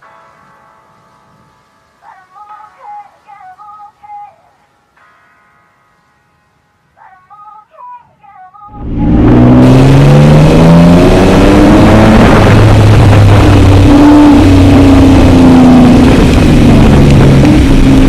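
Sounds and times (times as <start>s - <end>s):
truck engine accelerating hard: 8.7s - 18.0s.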